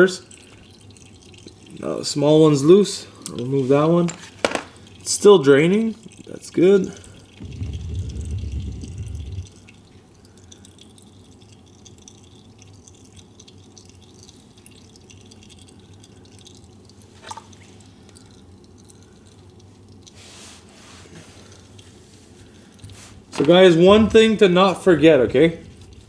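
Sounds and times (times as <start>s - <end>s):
oil trickling into drain pan: 0.0s - 26.0s
low rumble: 7.4s - 9.8s.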